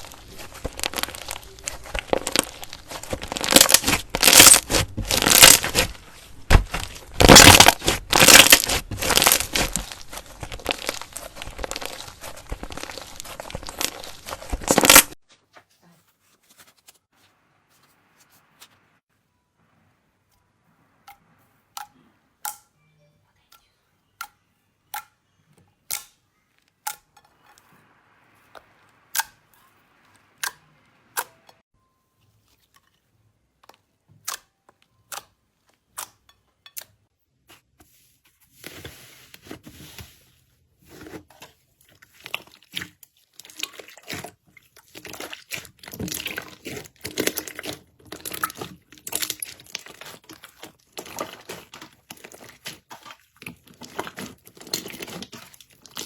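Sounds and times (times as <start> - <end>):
slime popping and squishing: 0.0 - 15.2, 41.9 - 56.0.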